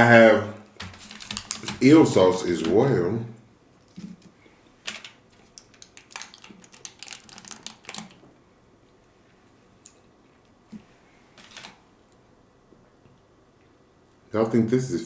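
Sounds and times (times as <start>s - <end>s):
plastic packaging clicks and taps: 4.9s - 8.2s.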